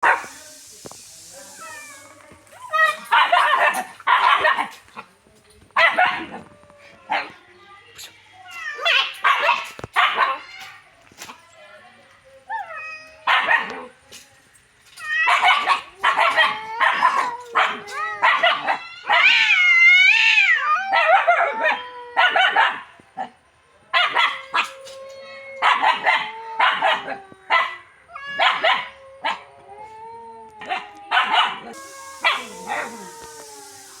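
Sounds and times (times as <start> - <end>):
puppy barking and yipping: 28.4 - 29.4, 30.7 - 33.9.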